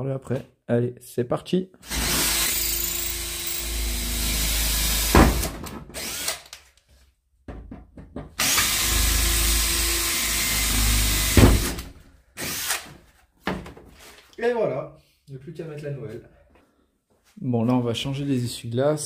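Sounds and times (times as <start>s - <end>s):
cordless drill running: 1.8s - 6.6s, 8.4s - 11.8s, 12.4s - 12.9s
sharp drill click: 1.9s - 4.2s, 6.0s - 6.6s, 12.4s - 12.9s.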